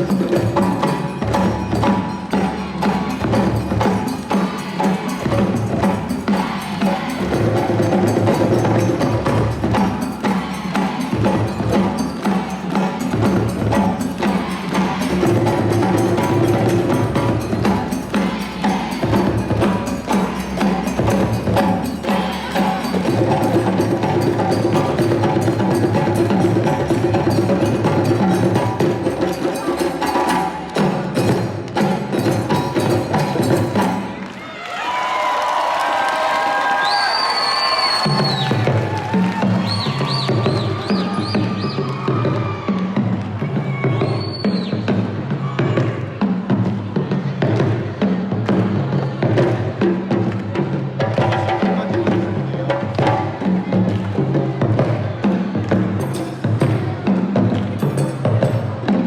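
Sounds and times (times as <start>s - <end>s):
drum ensemble playing: 0.0s - 34.3s, 37.5s - 59.0s.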